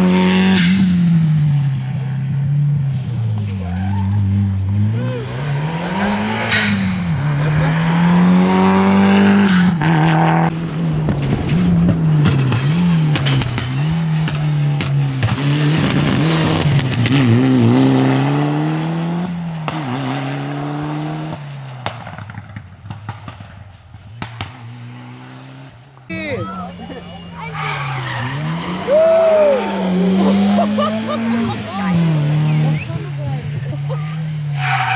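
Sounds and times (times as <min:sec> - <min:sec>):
rally car engine revving: 0:00.0 - 0:34.9
tyre squeal: 0:03.6 - 0:05.6, 0:27.2 - 0:30.3, 0:34.4 - 0:34.9
sharp cracks: 0:21.8 - 0:24.8.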